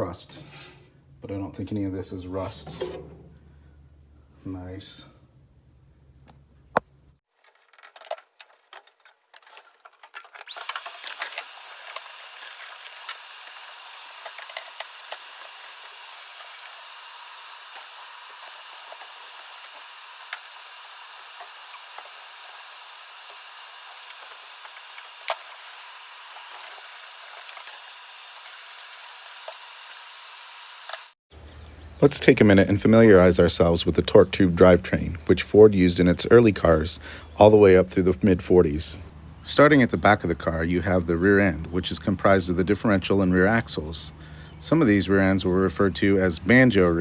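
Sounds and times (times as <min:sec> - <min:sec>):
electric tool motor whining: 0:10.4 - 0:31.2.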